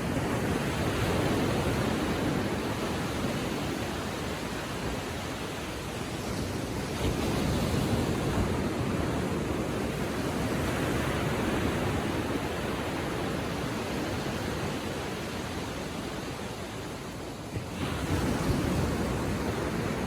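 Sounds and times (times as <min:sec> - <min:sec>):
ocean surf washing on beach: 0:00.0 - 0:20.0.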